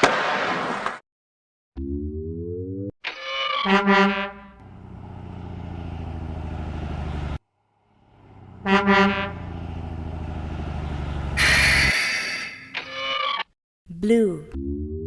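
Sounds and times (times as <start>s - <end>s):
truck horn honks: 3.6s - 4.7s, 8.4s - 9.8s, 11.3s - 12.2s
truck engine running: 4.5s - 11.9s
short rising tone: 11.3s - 12.8s.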